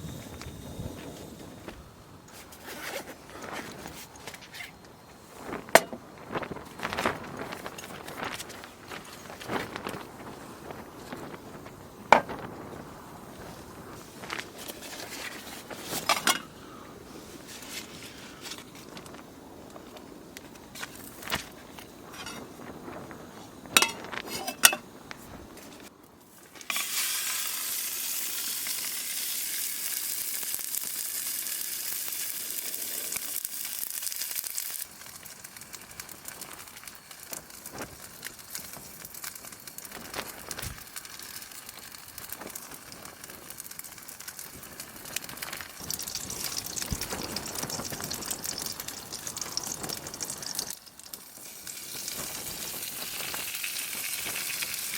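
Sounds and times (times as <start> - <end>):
food sizzling in a pan: 21.9 - 22.5, 23.7 - 24.8, 26.6 - 54.9
knocks and clinks of handling: 23.8 - 24.8.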